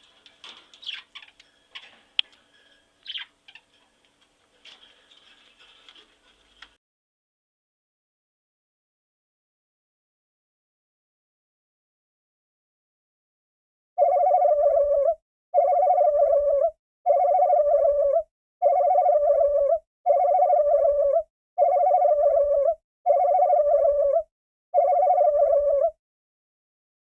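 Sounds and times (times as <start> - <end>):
warbling buzzy call-like tone: 14.0 - 26.0.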